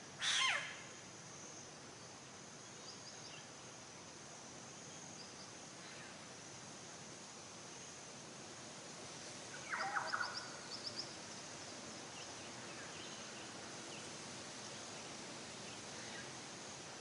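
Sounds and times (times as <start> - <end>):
steady outdoor hiss: 0.0 - 17.0
faint high bird chirps: 9.6 - 11.2.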